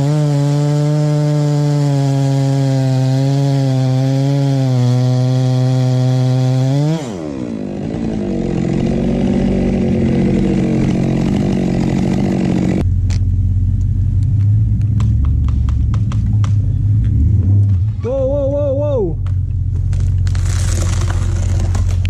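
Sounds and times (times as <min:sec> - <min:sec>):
chainsaw running: 0:00.0 - 0:12.8, 0:19.7 - 0:22.0
low rumble: 0:12.8 - 0:22.0
sharp knocks: 0:15.0 - 0:16.6.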